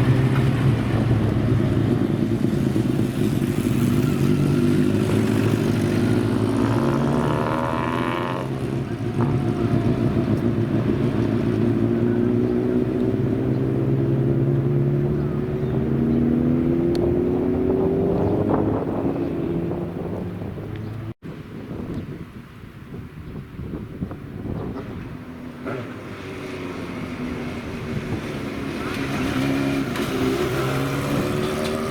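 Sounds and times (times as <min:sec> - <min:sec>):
old motorcycle engines running: 0:00.0 - 0:16.4, 0:24.6 - 0:31.9.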